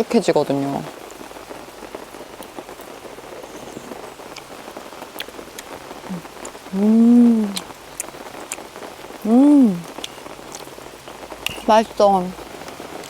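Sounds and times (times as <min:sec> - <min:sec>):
rain falling: 0:00.0 - 0:13.0
person humming: 0:06.1 - 0:07.6, 0:09.2 - 0:09.9.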